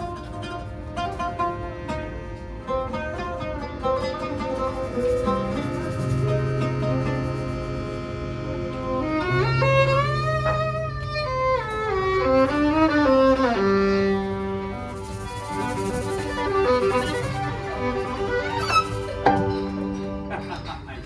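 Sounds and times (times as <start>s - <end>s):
violin melody with slides: 9.0s - 20.4s
band accompaniment: 15.6s - 20.5s.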